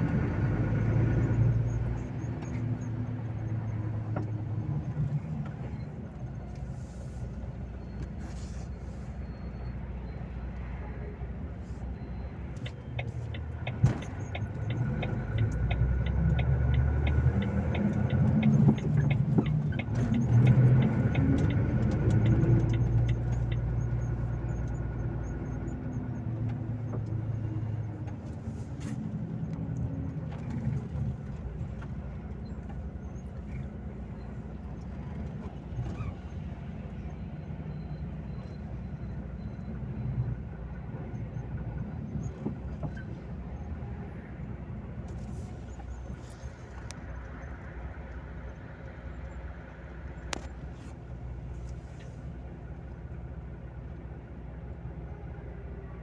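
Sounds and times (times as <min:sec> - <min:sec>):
diesel truck engine running: 0:00.0 - 0:56.0
regular ticking: 0:12.6 - 0:24.0.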